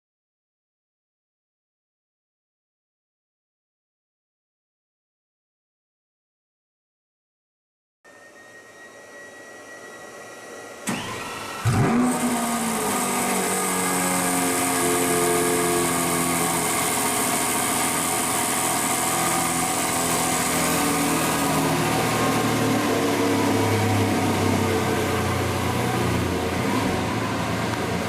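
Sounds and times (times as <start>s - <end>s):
faint hum: 8.1s - 11.6s
supercar engine starting and idling: 10.7s - 28.0s.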